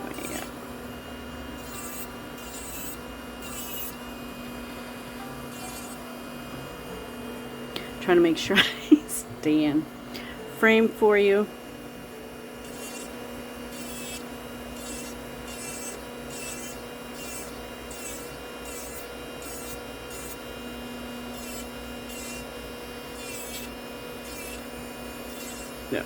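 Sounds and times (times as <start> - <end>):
drill bit scraping fingernail: 0.0 - 0.6, 1.4 - 4.6, 5.5 - 6.2, 12.6 - 26.0
dust collector fan humming: 0.0 - 26.0
electric nail drill whining: 0.0 - 26.0.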